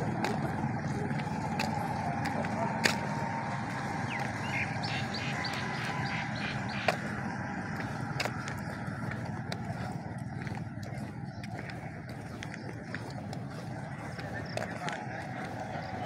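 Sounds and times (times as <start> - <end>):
outdoor background noise: 0.0 - 16.0
bird chirping: 3.7 - 16.0.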